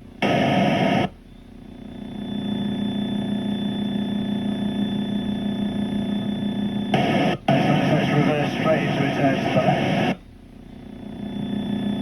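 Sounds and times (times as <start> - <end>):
crackly intercom burst: 7.0 - 10.2.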